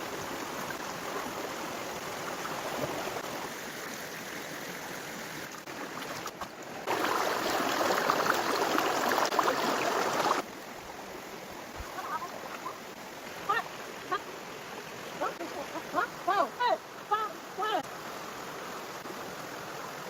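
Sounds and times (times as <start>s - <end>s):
running water: 0.0s - 20.0s
splashy water rush: 5.4s - 10.5s.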